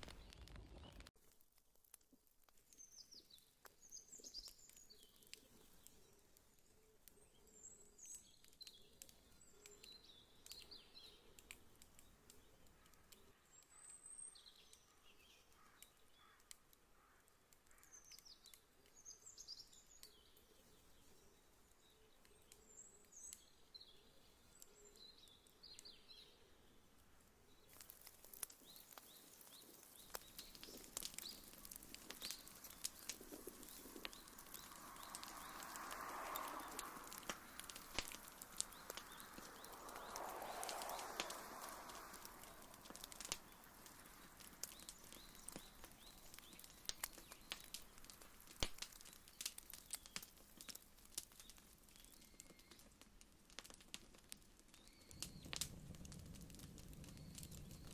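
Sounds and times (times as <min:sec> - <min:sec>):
wood fire crackling and popping: 0:00.0 - 0:57.9
birds chirping: 0:02.8 - 0:53.0, 0:54.7 - 0:57.9.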